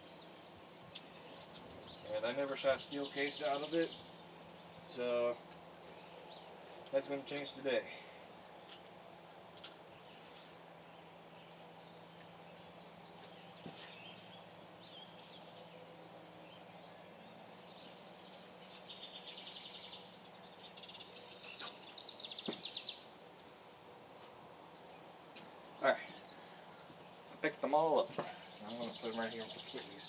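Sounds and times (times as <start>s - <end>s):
birds chirping: 0.0s - 9.2s, 9.8s - 30.0s
fast trilling bird songs: 10.0s - 23.2s.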